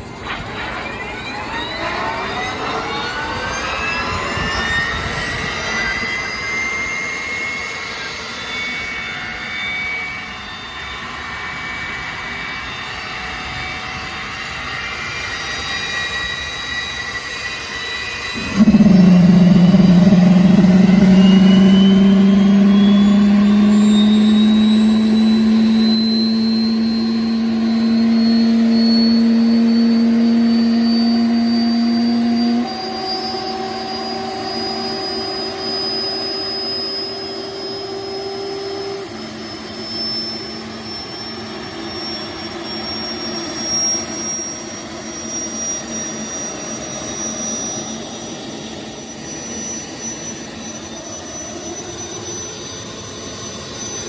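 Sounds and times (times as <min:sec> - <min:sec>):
gas turbine whine: 0:00.0 - 0:54.0
loud low hum: 0:18.3 - 0:41.3.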